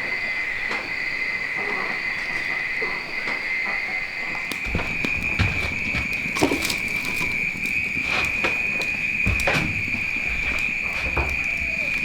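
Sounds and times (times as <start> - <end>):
high insect drone: 0.0 - 12.0
dull thumps: 4.6 - 12.0.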